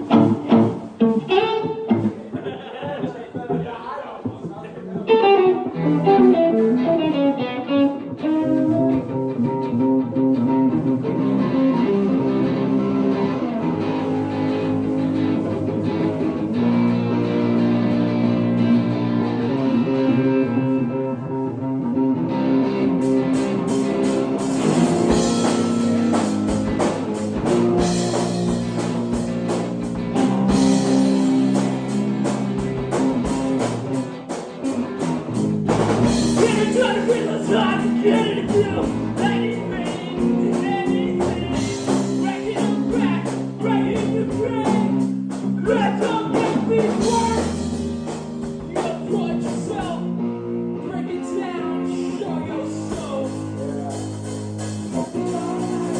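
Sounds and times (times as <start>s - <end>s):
guitar playing: 0.0s - 55.9s
drums and cymbals: 23.0s - 50.0s, 52.7s - 55.9s.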